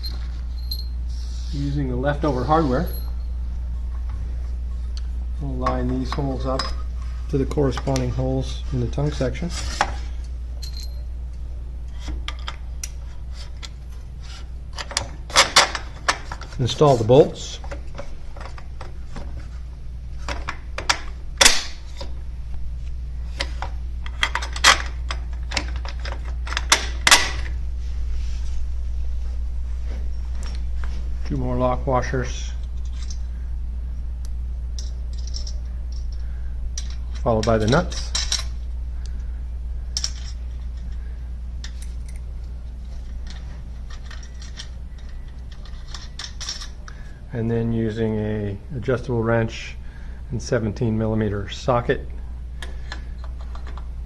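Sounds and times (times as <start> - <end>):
metal bolts clicking and clinking: 0.0 - 1.0, 5.5 - 6.9, 10.6 - 11.1, 14.7 - 16.6, 23.4 - 27.5, 34.8 - 36.2, 36.8 - 38.6, 40.0 - 40.9, 43.2 - 46.8
metal washers and nuts clinking: 0.0 - 1.0, 2.2 - 3.3, 5.5 - 8.2, 8.9 - 11.1, 32.4 - 33.3, 34.7 - 38.6, 39.9 - 41.0, 43.0 - 46.8
low steady hum: 0.0 - 54.0.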